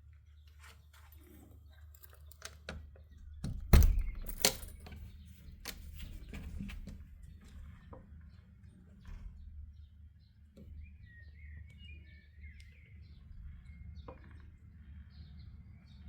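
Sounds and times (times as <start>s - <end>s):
rattling and clicking: 2.1s - 7.8s.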